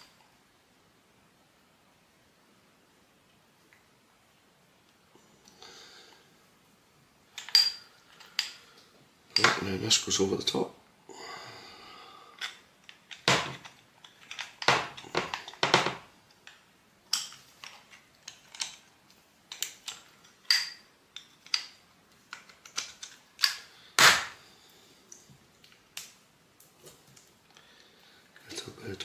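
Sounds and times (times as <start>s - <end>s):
metal parts clicking and knocking: 7.4s - 8.6s, 12.4s - 18.9s, 19.5s - 24.1s.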